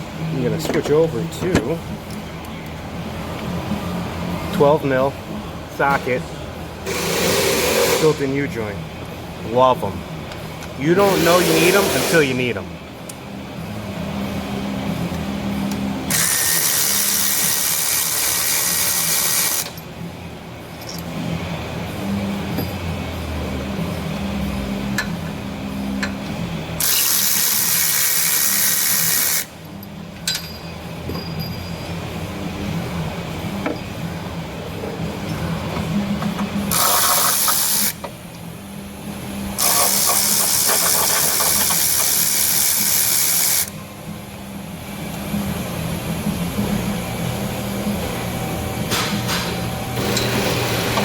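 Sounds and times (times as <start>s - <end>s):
air ratchet exhaust hissing: 6.8s - 8.4s, 10.6s - 12.5s, 15.7s - 19.8s, 24.8s - 30.6s, 35.5s - 38.3s, 39.1s - 43.8s
ratchet clicks: 26.8s - 30.5s, 36.7s - 38.1s, 39.6s - 43.8s.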